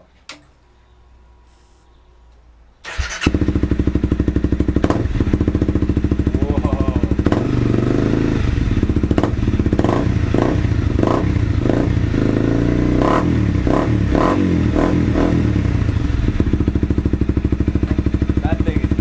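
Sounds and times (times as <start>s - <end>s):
exhaust backfiring: 2.8s - 19.0s
motorcycle engine idling: 2.9s - 12.5s, 15.0s - 19.0s.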